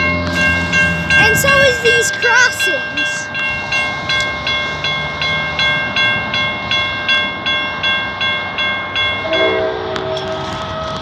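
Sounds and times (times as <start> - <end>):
railroad crossing bell ringing: 0.0 - 11.0
train horn: 9.2 - 10.7.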